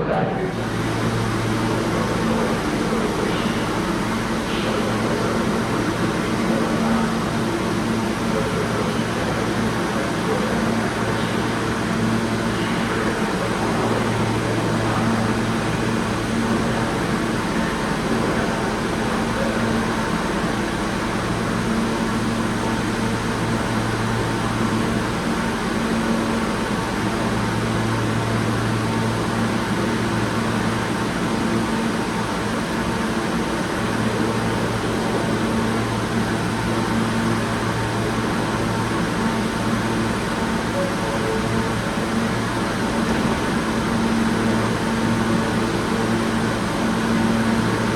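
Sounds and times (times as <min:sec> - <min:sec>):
air-conditioning and ventilation rush: 0:00.0 - 0:47.9
low electrical hum: 0:00.0 - 0:47.9.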